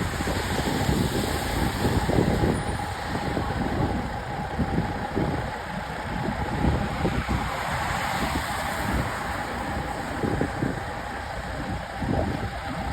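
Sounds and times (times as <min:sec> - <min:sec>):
truck engine rumbling: 0:00.0 - 0:12.9.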